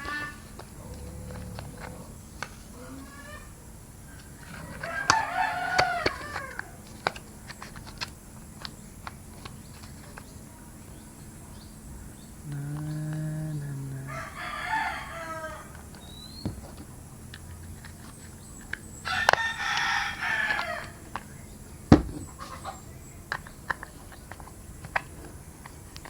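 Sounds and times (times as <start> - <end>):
chickens clucking: 0.0 - 7.2, 8.6 - 25.9
rooster crowing: 4.4 - 6.9, 12.5 - 16.3, 19.0 - 21.2.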